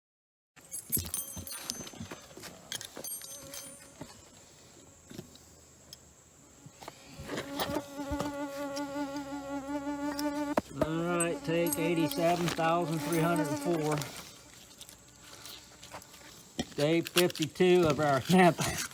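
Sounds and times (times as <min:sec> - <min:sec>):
flying insect buzzing: 0:01.1 - 0:16.6.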